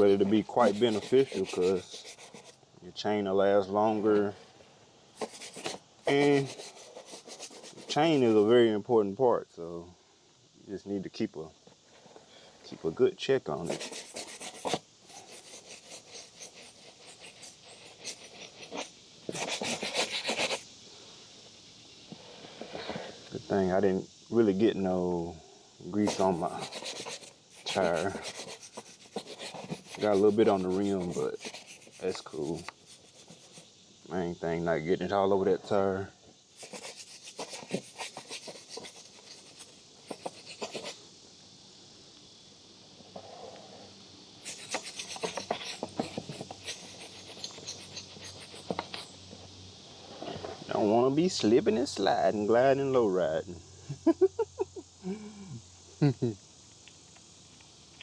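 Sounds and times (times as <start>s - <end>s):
brush scrubbing a chain: 0.0s - 2.6s, 5.2s - 8.4s, 13.6s - 20.6s, 26.0s - 33.7s, 36.6s - 41.0s, 44.4s - 49.2s
hand rubbing and scraping: 0.0s - 2.6s, 5.2s - 8.5s, 12.7s - 20.7s, 26.0s - 33.7s, 36.6s - 41.0s, 44.4s - 49.3s
faint steady hiss: 0.0s - 58.0s.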